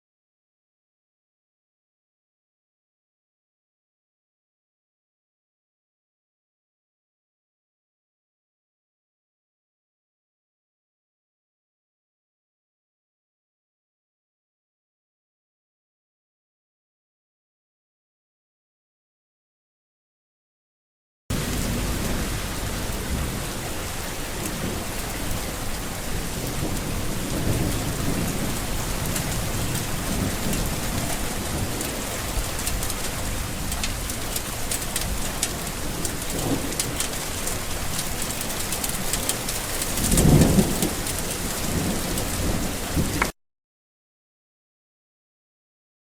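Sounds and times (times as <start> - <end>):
low rumble of thunder: 21.3 - 43.3
rain pattering: 21.3 - 43.3.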